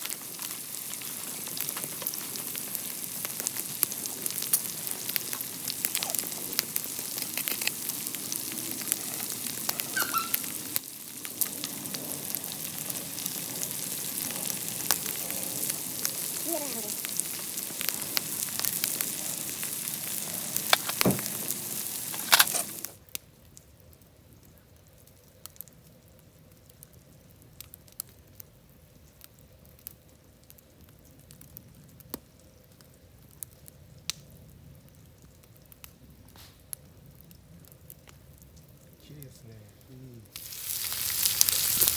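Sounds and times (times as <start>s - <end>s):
food sizzling in hot oil: 0.0s - 23.1s, 40.2s - 41.9s.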